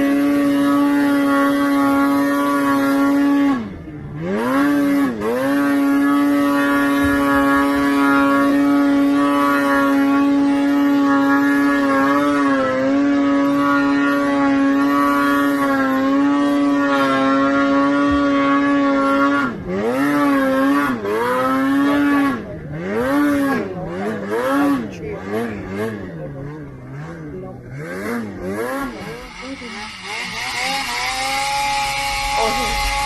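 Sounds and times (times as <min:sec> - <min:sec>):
snowmobile engine revving: 0:00.0 - 0:33.0.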